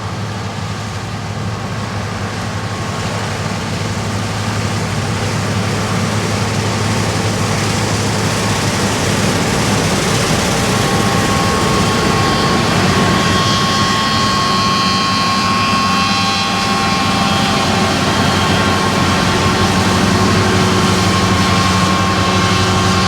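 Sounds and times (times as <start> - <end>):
combine harvester engine din: 0.0 - 23.0
thin high whine: 5.9 - 23.0.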